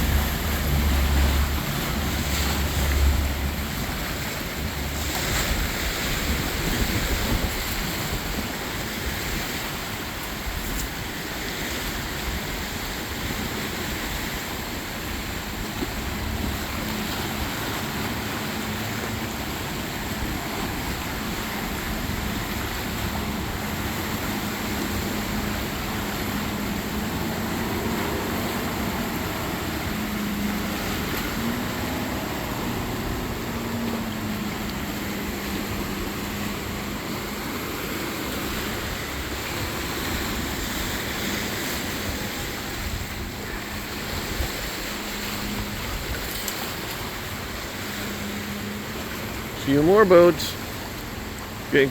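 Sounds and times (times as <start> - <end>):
wind buffeting microphone: 0.0 - 18.4
motorboat engines running: 0.0 - 51.9
steady engine hum: 0.0 - 51.9
water washing: 0.0 - 51.9.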